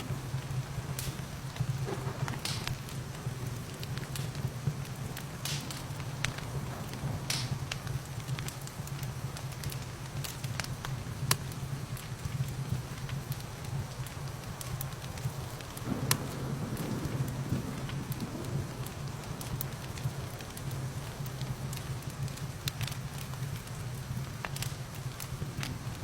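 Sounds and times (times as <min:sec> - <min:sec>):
rain: 0:00.0 - 0:26.0
wood fire crackling: 0:00.0 - 0:26.0.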